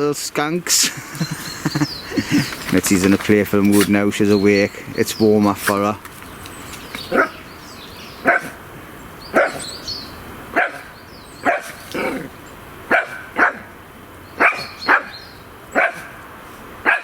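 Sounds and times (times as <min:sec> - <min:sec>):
dog barking: 0:07.1 - 0:07.4, 0:08.2 - 0:08.6, 0:09.3 - 0:09.7, 0:10.5 - 0:12.2, 0:12.9 - 0:13.7, 0:14.4 - 0:16.2.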